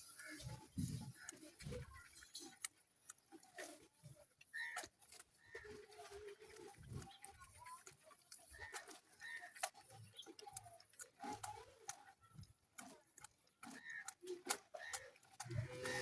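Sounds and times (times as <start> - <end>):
faint scattered clicks and taps: 0.0 - 16.0
animal or bird calls: 4.5 - 7.3, 8.5 - 10.3, 13.6 - 16.0.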